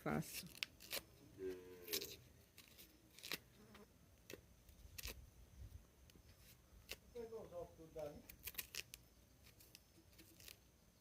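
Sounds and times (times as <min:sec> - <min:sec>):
knife scraping peel: 0:00.3 - 0:05.2, 0:08.3 - 0:10.6.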